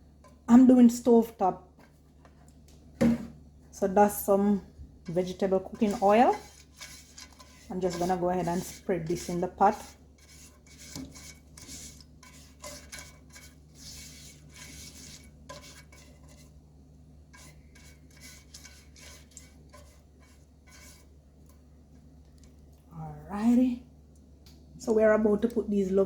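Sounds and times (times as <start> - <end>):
utensil scraping cooking pot: 0.2 - 0.8, 5.0 - 16.6, 17.2 - 21.2.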